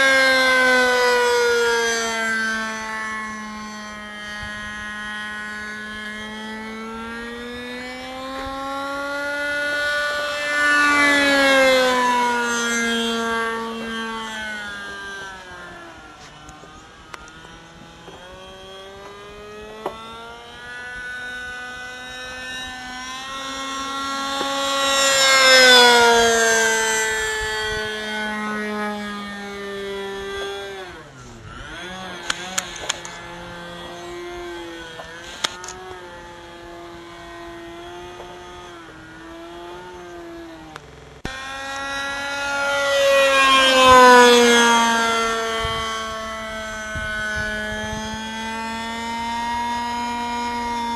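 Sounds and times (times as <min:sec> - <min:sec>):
model airplane engine flying past: 0:00.0 - 0:50.9.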